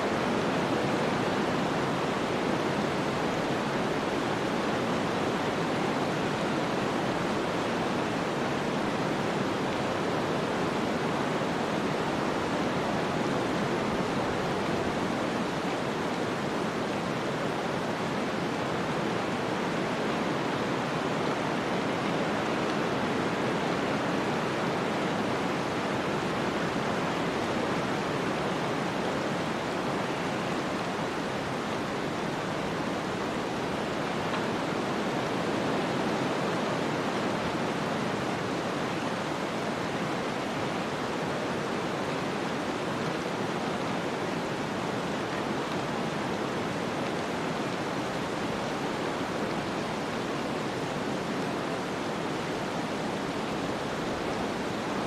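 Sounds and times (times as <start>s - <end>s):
snowstorm hiss: 0.0s - 55.0s.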